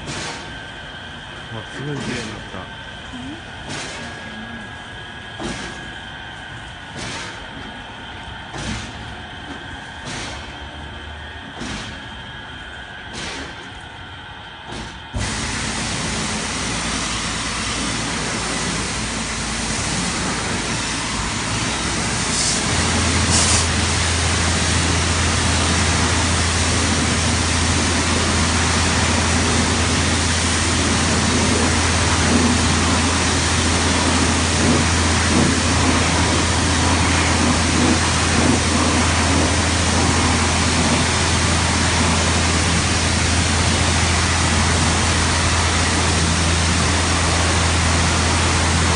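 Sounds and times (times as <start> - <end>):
low machinery hum: 0.0 - 48.9
rushing hiss of spray: 15.2 - 48.9.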